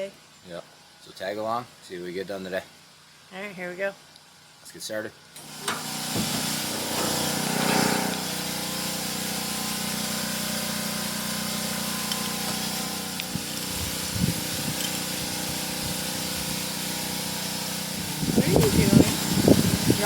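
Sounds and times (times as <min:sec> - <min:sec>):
engine humming: 0:05.6 - 0:20.0.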